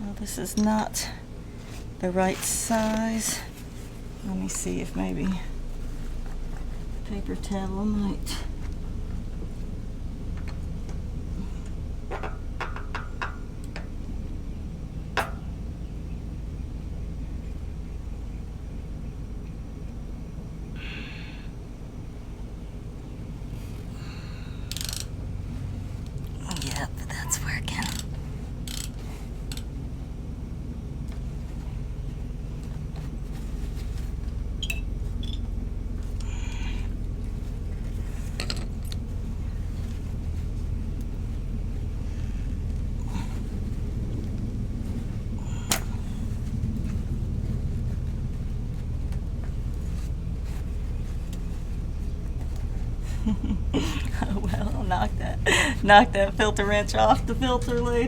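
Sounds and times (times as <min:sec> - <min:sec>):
steady low hum: 0:00.0 - 0:58.0
steady low rumble: 0:00.0 - 0:58.0
short rustle: 0:01.4 - 0:07.5
ratchet wrench metal clicks: 0:24.7 - 0:25.1, 0:28.7 - 0:29.6.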